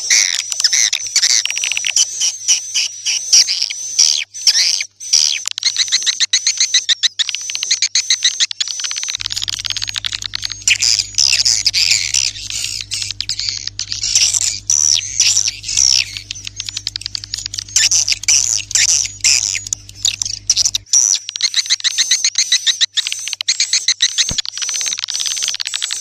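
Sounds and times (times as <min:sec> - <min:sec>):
birds chirping and twittering: 0:08.1 - 0:26.0
low steady hum: 0:09.2 - 0:20.9.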